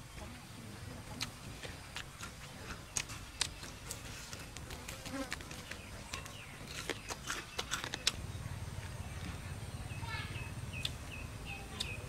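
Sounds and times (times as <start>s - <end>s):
wet chewing and smacking: 1.1s - 8.2s.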